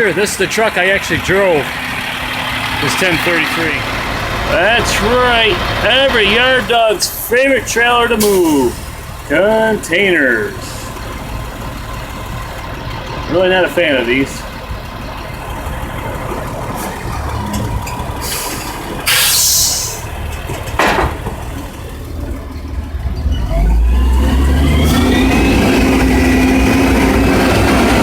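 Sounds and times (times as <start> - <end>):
diesel engine running and revving: 0.0 - 28.0
air hiss: 18.2 - 20.0.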